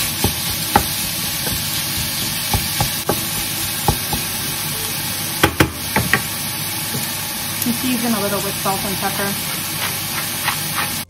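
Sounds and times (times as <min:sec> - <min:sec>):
meat sizzling in a frying pan: 0:00.0 - 0:11.0
wooden spoon knocking pan: 0:00.2 - 0:04.4, 0:05.4 - 0:06.3.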